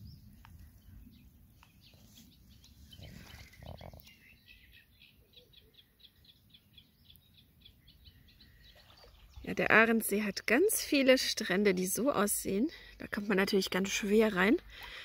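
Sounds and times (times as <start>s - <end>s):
faint bird chirps: 0.0s - 9.5s.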